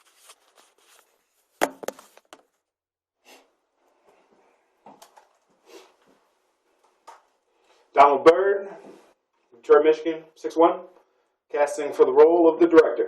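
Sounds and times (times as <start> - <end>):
rustling handling noises: 0.0 - 2.6.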